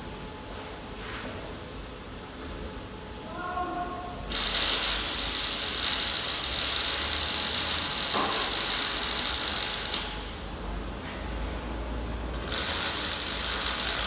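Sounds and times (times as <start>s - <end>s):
loud steady hiss: 3.3s - 10.8s, 12.3s - 14.0s.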